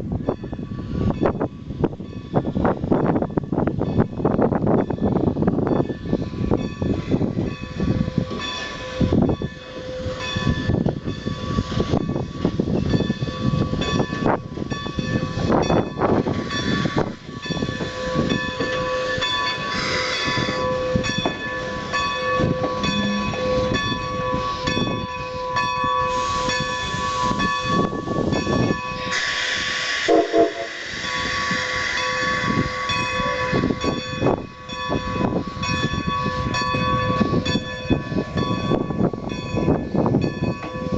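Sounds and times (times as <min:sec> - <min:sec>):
steam locomotive engine: 0:00.0 - 0:40.9
locomotive bell ringing: 0:00.2 - 0:29.3, 0:30.1 - 0:40.9
steam hiss burst: 0:29.1 - 0:32.9.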